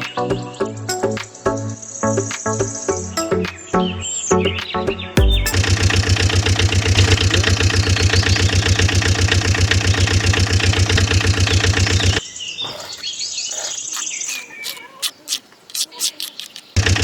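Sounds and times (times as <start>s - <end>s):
high chirping: 5.2s - 5.7s, 12.2s - 16.8s.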